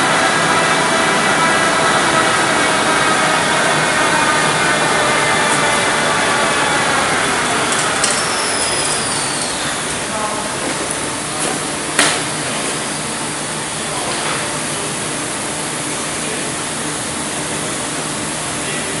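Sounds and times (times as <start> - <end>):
low hum: 0.0 - 12.0
printing machine running: 0.0 - 19.0.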